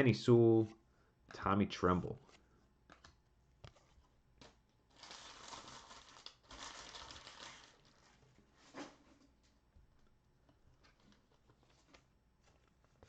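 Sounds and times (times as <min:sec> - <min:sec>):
plastic wrapper crinkling: 0:04.4 - 0:08.2.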